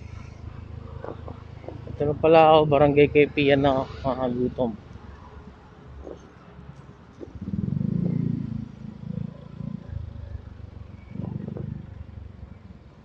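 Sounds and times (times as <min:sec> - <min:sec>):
motorcycle engine revving: 0:07.2 - 0:13.0.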